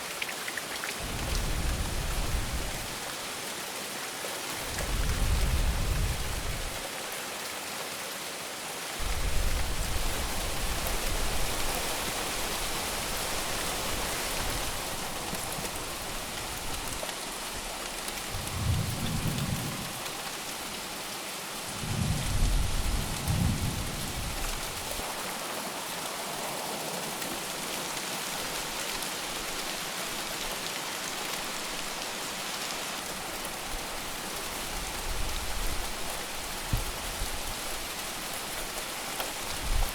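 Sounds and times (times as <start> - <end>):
heavy rain falling: 0.0 - 39.9
low rolls of thunder: 1.0 - 3.0, 4.6 - 6.8, 18.3 - 20.3, 21.8 - 25.0.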